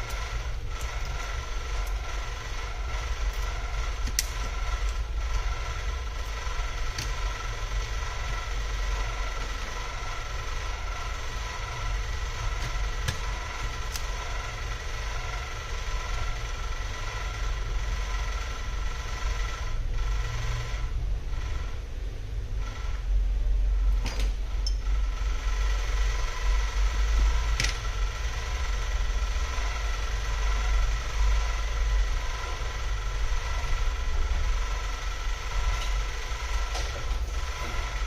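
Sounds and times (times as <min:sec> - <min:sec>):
constant high tones: 0:00.0 - 0:21.8
machine hum: 0:00.0 - 0:38.0.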